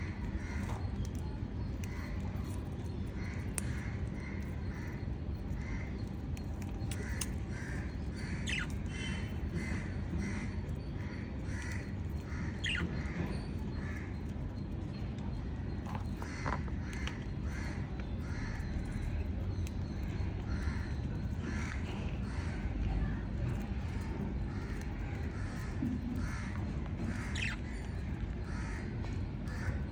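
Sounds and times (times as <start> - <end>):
steady low rumble: 0.0 - 29.9
lovebirds squawking: 6.9 - 10.8, 11.4 - 14.3, 16.0 - 29.8
lovebirds chirping harshly: 27.0 - 28.7.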